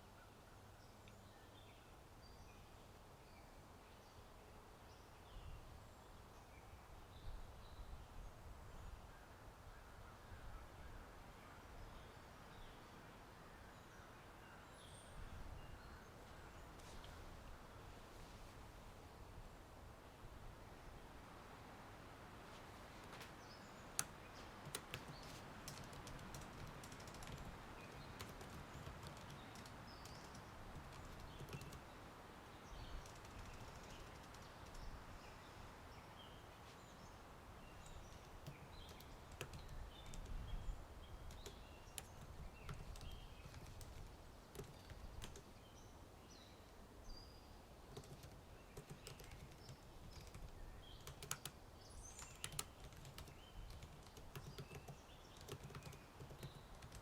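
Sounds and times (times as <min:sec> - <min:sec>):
wind in trees: 0:00.0 - 0:57.0
typing on computer keyboard: 0:24.0 - 0:31.8, 0:33.0 - 0:34.8, 0:38.3 - 0:40.4, 0:41.3 - 0:45.5, 0:47.9 - 0:51.6, 0:52.2 - 0:57.0.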